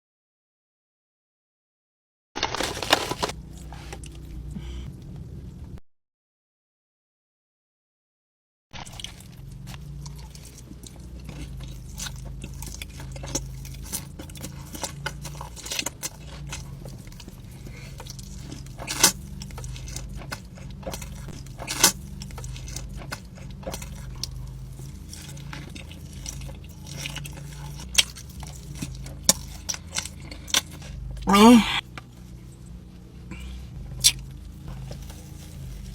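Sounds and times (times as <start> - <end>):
food crunches: 2.4 - 4.2, 8.8 - 31.1
person chewing food: 8.8 - 35.9.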